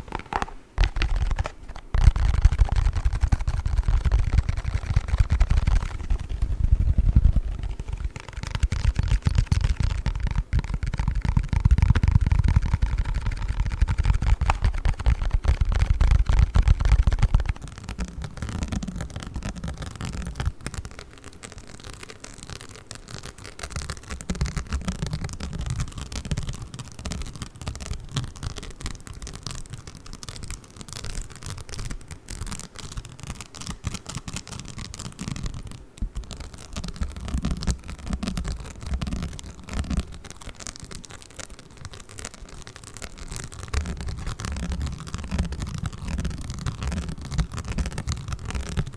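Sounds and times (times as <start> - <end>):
low handling noise: 0.0 - 10.9
foam dough crackling and squishing: 0.0 - 48.9.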